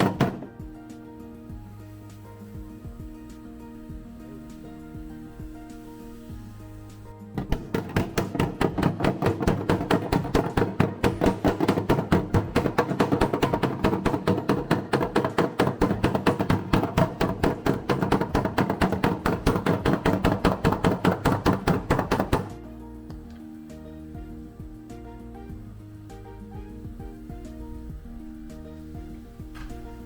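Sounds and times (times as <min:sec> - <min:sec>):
hammer striking steel panel: 0:00.0 - 0:00.6, 0:07.4 - 0:22.6
background music: 0:00.0 - 0:30.0.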